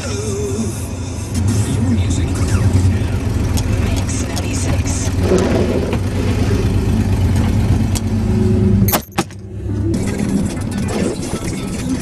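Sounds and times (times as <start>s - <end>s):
pickup engine revving: 0.9s - 8.9s.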